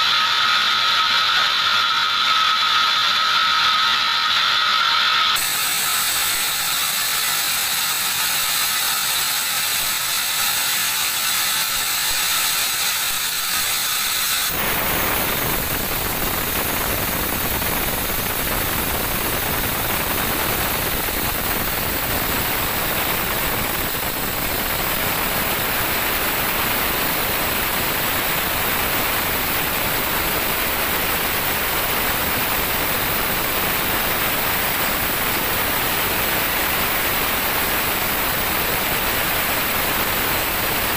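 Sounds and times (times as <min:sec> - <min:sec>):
band saw rattling: 0:05.0 - 0:16.8.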